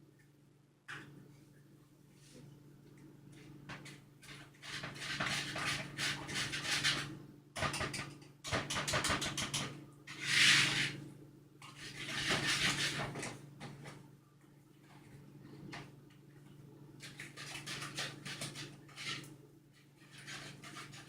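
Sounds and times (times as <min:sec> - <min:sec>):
utensils scraping mixing bowl: 0:04.2 - 0:11.0, 0:11.6 - 0:13.4, 0:17.0 - 0:21.0.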